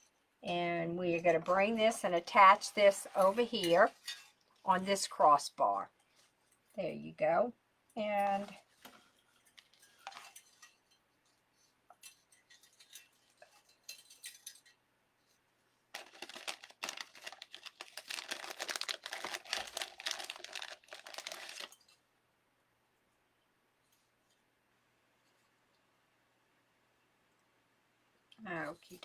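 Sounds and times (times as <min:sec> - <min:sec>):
mesh crinkling rustle: 0:00.5 - 0:05.4, 0:08.2 - 0:22.1.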